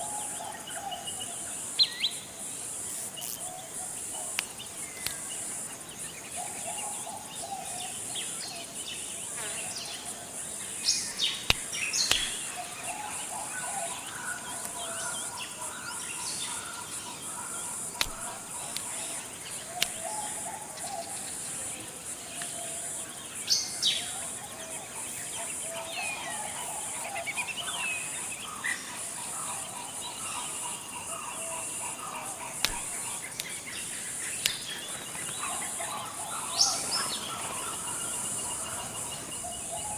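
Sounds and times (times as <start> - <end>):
high-pitched insect drone: 1.3 - 8.4, 22.7 - 39.9
birds calling and chirping: 2.9 - 39.9.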